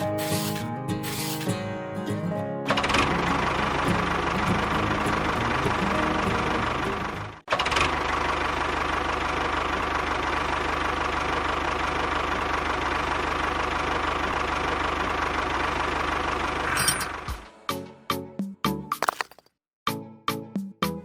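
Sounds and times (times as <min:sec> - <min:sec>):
small engine knocking steadily: 0:07.5 - 0:16.4.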